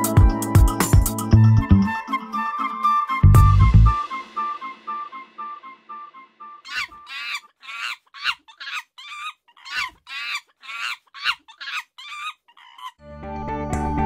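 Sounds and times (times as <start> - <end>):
short pitch-bending animal calls: 6.6 - 13.0.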